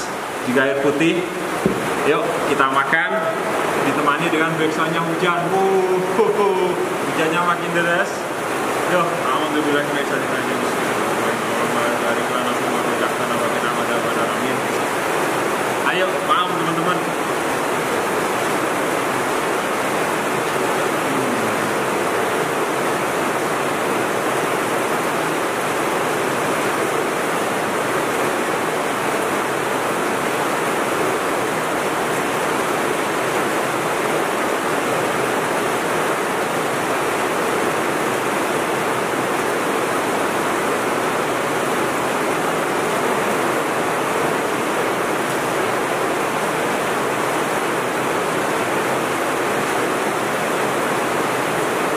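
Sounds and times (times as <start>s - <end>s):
heavy rain pouring: 0.0s - 51.9s.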